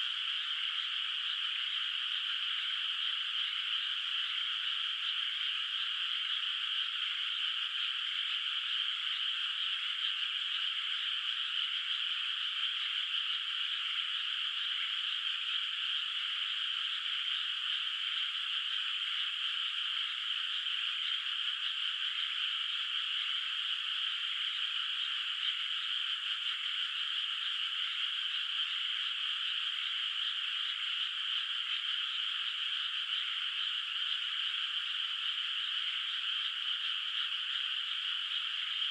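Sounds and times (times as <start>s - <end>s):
chorus of frogs calling: 0.0s - 38.9s.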